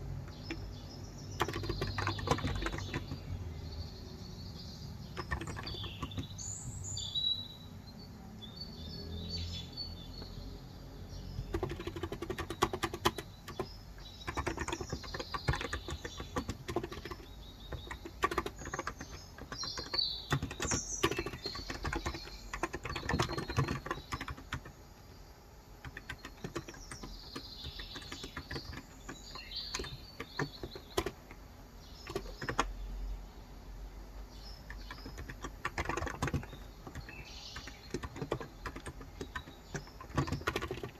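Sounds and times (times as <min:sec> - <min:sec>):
birds chirping: 0:00.0 - 0:40.9
typing on keyboard: 0:00.2 - 0:03.4, 0:04.6 - 0:06.5, 0:11.2 - 0:24.8, 0:25.8 - 0:32.9, 0:34.4 - 0:40.9.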